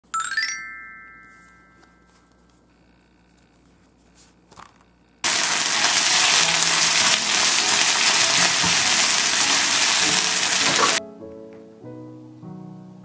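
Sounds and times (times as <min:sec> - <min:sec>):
onion sizzling in oil: 0:05.2 - 0:11.0.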